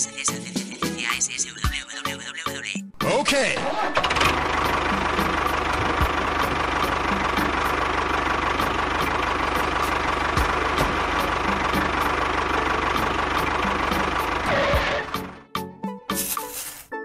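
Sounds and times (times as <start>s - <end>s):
tractor engine idling with knock: 3.6s - 15.4s.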